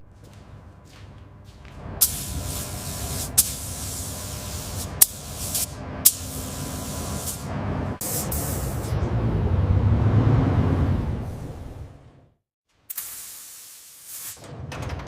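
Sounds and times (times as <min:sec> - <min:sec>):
low hum: 0:00.0 - 0:12.3
compressed air hissing bursts: 0:02.0 - 0:08.9, 0:12.9 - 0:14.4.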